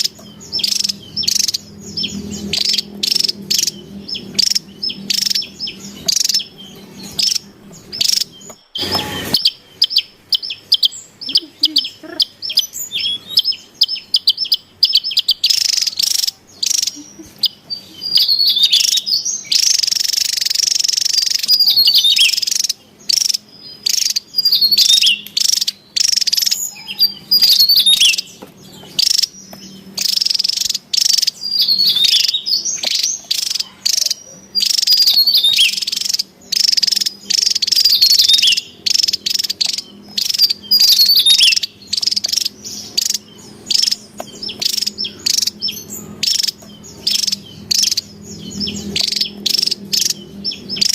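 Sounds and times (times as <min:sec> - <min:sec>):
bird singing chattering notes: 0:00.0 - 0:50.9.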